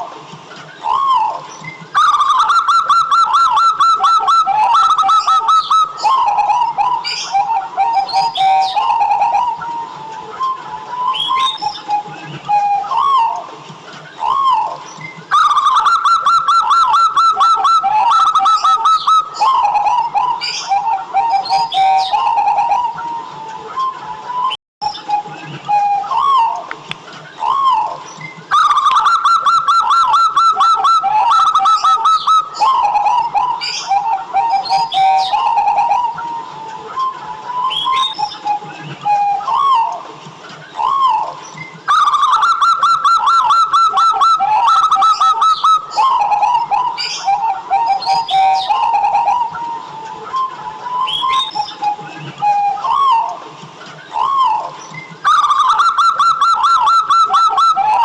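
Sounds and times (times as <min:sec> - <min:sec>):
dove cooing in trilled phrases: 0:00.0 - 0:40.0, 0:40.6 - 0:58.0
higher bird chirps: 0:00.7 - 0:13.4, 0:14.1 - 0:40.0, 0:40.6 - 0:53.4, 0:54.0 - 0:58.0.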